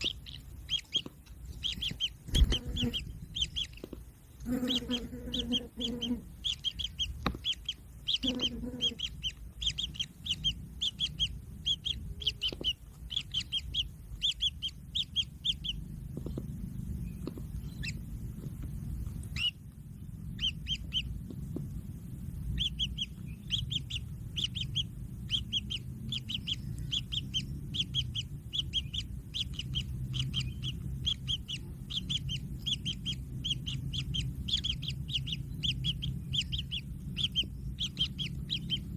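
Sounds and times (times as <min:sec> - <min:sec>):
chicks high begging calls: 0:00.0 - 0:38.9
steady low rumble: 0:00.0 - 0:38.9.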